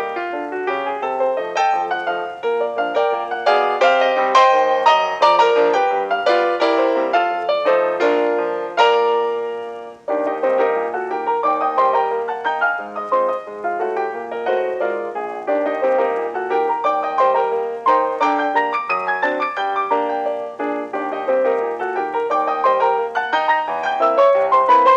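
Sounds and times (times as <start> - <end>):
solo piano music: 0.0 - 24.9.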